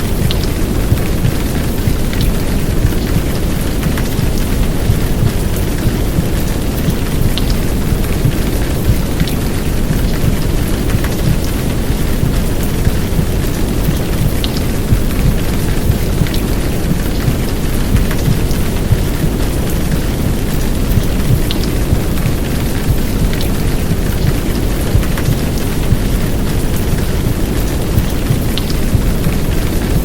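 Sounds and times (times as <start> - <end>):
heavy rain hiss: 0.0 - 30.0
raindrop ticks: 0.0 - 30.0.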